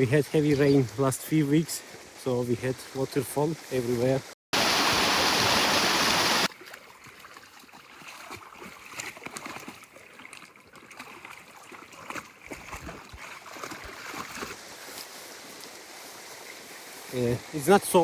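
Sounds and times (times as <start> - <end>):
stream trickling and gurgling: 0.0 - 18.0
waterfall rushing loudly: 4.6 - 6.5
small water splashes: 4.6 - 17.1.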